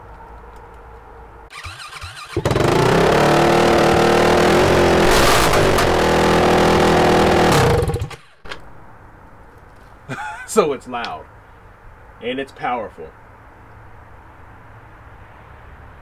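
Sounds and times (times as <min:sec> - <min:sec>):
loud motorcycle engine running: 0:02.3 - 0:08.2.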